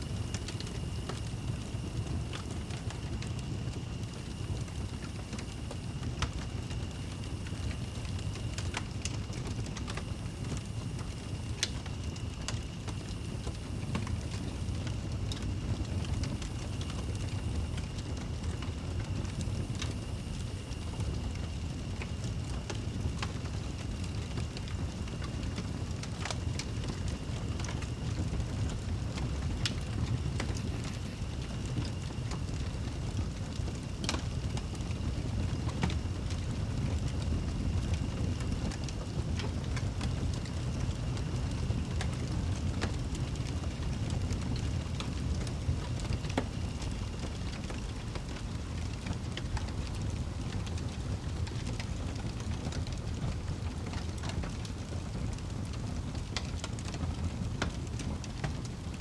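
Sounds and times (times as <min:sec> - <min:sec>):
wood fire crackling: 0:00.0 - 0:59.0
thin steady high tone: 0:29.4 - 0:33.2.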